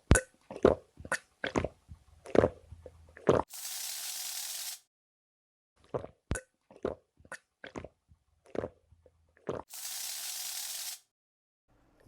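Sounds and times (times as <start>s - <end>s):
steady spray of water: 3.5s - 4.8s, 9.7s - 11.0s.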